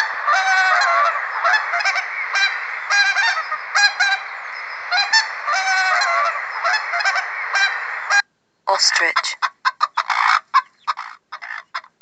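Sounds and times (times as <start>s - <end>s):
background hiss: 0.0s - 12.0s
swans honking: 0.0s - 12.0s.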